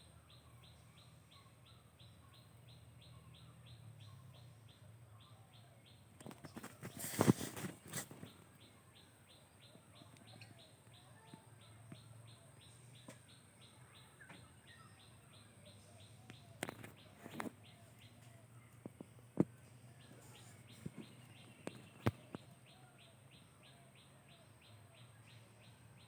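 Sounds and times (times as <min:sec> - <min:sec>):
bird chirping: 0:00.0 - 0:26.0.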